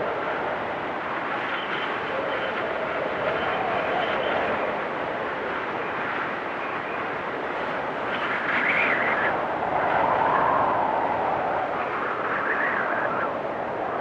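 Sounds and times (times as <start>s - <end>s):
storm wind howling: 0.0s - 14.0s.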